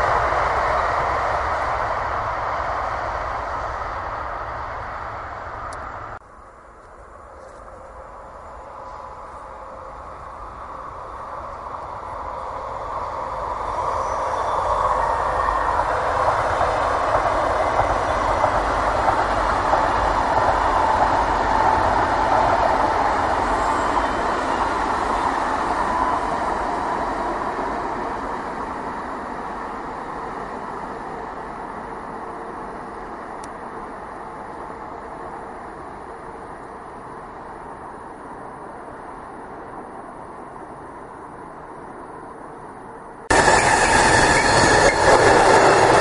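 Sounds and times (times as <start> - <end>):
high-speed train rushing past: 0.0 - 46.0.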